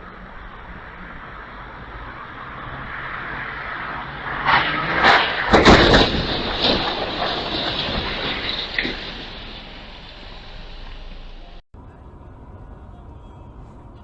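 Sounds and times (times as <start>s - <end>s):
road and engine noise: 0.0s - 14.0s
loud collision bangs: 2.6s - 11.6s.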